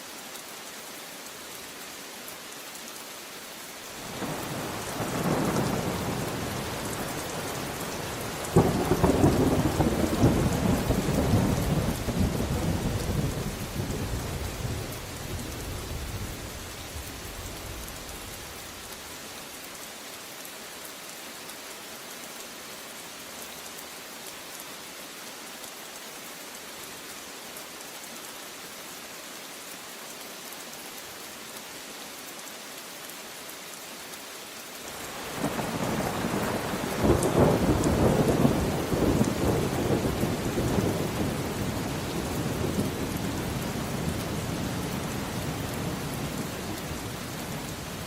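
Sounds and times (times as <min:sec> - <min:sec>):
steady rain: 0:00.0 - 0:48.0
thunder rumbling and cracking: 0:08.5 - 0:18.0, 0:35.5 - 0:44.8.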